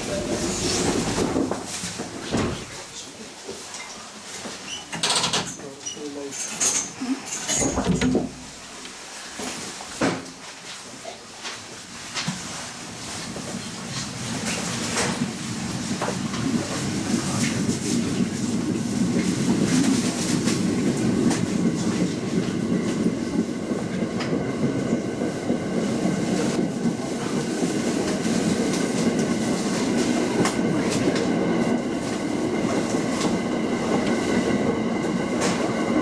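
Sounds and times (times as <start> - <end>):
train wheels rumbling on rail: 0.0 - 3.1, 11.6 - 36.0.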